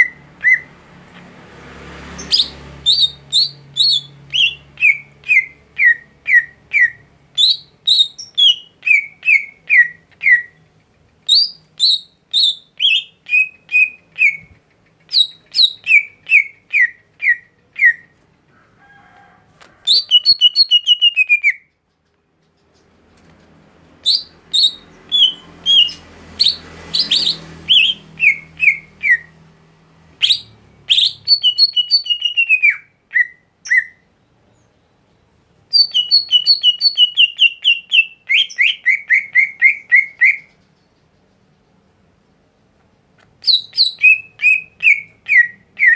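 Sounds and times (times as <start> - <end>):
songbird whistling: 0.0 - 0.7, 2.2 - 18.2, 19.9 - 21.8, 24.0 - 29.4, 30.2 - 34.1, 35.7 - 40.9, 43.4 - 45.9.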